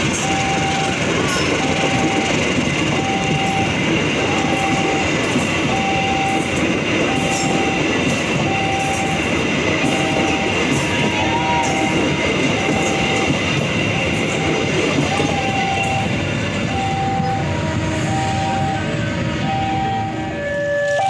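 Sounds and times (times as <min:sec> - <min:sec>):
train rushing and rumbling: 0:00.0 - 0:21.0
short beeping tone: 0:16.7 - 0:20.2.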